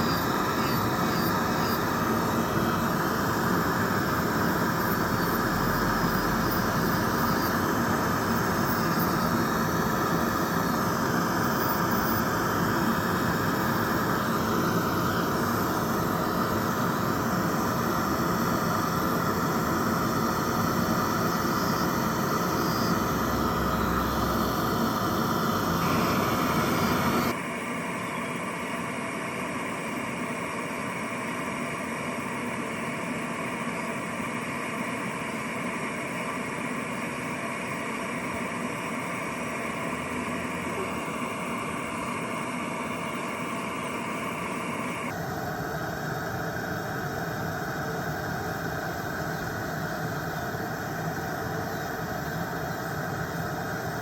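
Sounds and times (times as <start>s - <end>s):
electric nail drill filing: 0.0s - 27.4s.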